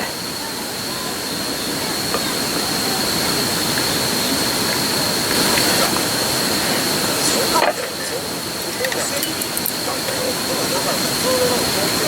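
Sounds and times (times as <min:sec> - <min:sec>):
broth boiling hard in a pot: 0:00.0 - 0:12.0.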